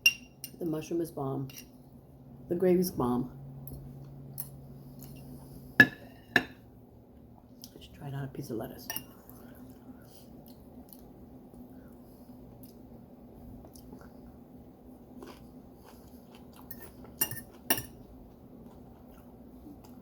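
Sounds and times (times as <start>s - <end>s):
faint chewing: 9.2s - 12.9s, 15.0s - 20.0s
cutlery clinking on a plate: 16.7s - 18.0s.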